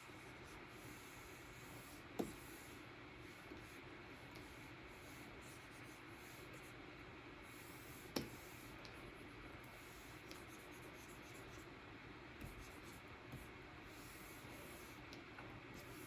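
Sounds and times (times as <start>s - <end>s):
stylus scratching on screen: 9.7s - 11.7s, 12.4s - 15.0s, 15.8s - 16.0s.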